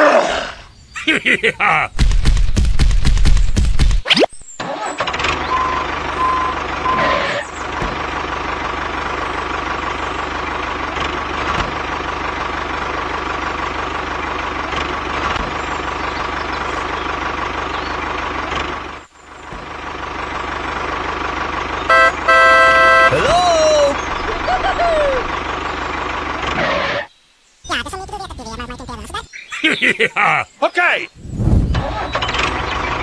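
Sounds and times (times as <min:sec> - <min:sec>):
tractor engine running: 0:01.9 - 0:27.1, 0:31.7 - 0:33.0
short beeps: 0:21.9 - 0:23.2.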